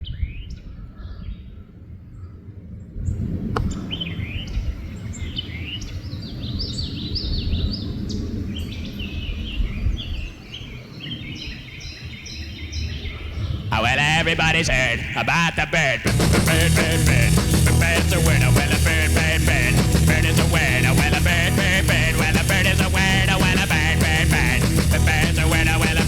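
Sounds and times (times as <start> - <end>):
birds chirping: 3.7 - 26.0
steady low rumble: 16.1 - 26.0.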